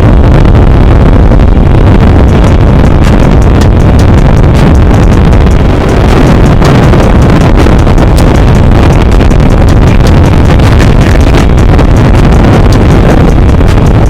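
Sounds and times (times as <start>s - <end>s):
motorcycle engines running: 0.0s - 14.0s
wind buffeting microphone: 0.0s - 14.0s.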